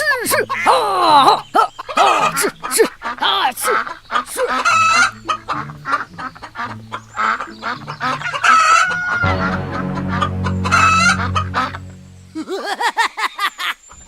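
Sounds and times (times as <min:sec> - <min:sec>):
chickens clucking: 0:00.0 - 0:12.8
low steady drone: 0:09.0 - 0:12.5.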